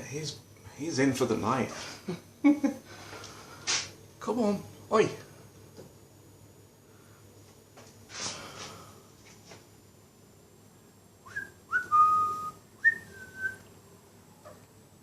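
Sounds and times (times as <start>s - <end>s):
person whistling: 11.3s - 13.6s.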